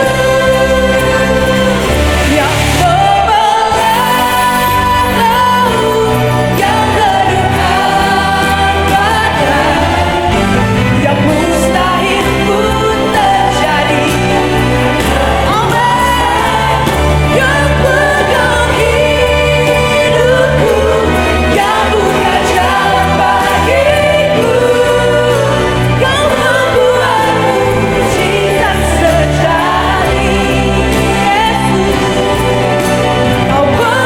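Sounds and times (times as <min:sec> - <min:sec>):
band playing worship music: 0:00.0 - 0:34.0
people singing: 0:00.0 - 0:34.0.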